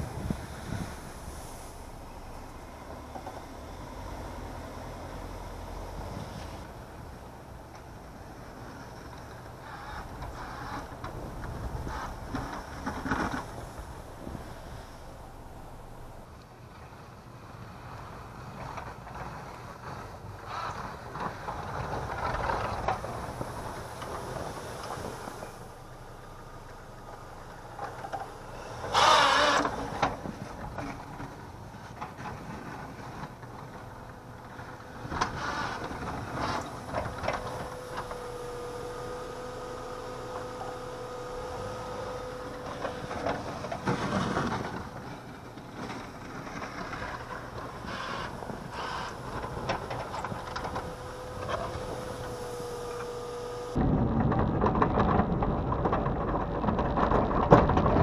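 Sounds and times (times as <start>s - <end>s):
dense rushing sound: 0.0s - 6.7s, 10.9s - 16.4s
plow scraping snow: 0.0s - 58.0s
car engine revving under load: 34.0s - 58.0s.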